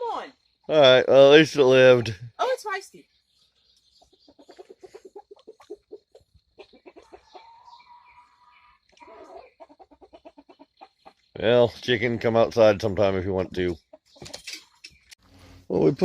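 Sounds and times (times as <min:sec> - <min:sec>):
chickens clucking softly: 0:03.8 - 0:14.5.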